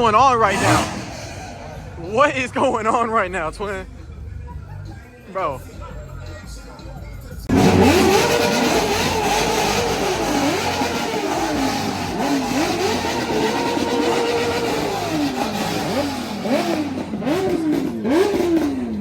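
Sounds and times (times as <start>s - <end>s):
car engine revving hard: 0.0s - 3.0s, 7.5s - 19.0s.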